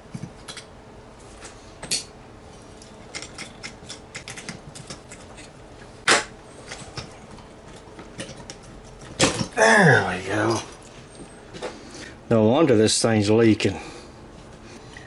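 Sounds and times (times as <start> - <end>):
screwdriver and metal parts clicking: 2.8 - 5.5.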